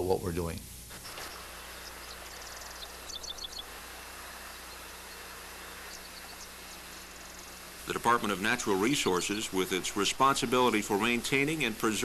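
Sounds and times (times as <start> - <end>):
steady hiss and low hum: 0.0 - 12.0
buzzy bird trill: 1.1 - 12.0
high bird chirps: 1.2 - 3.8, 4.6 - 7.6.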